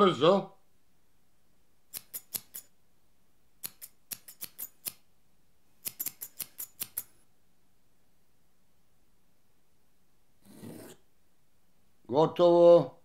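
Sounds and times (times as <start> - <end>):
scissors snipping hair: 1.9 - 2.7, 3.6 - 5.0, 5.8 - 7.2.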